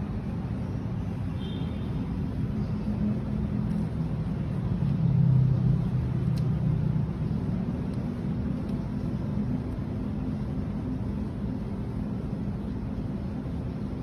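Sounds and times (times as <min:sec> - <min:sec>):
low motor hum: 0:02.0 - 0:14.0.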